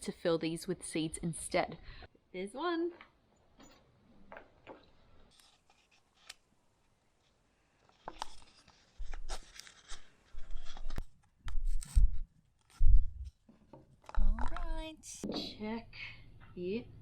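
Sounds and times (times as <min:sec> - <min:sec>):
plastic rustling and crinkling: 0:07.2 - 0:12.9.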